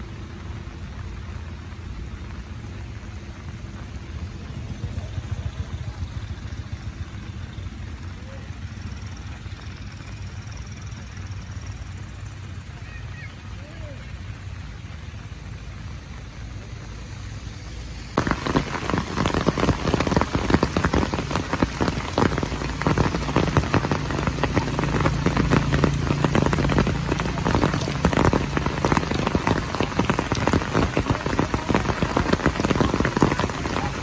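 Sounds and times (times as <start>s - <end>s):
heavy rain on hard surface: 0.0s - 6.5s, 12.4s - 34.0s.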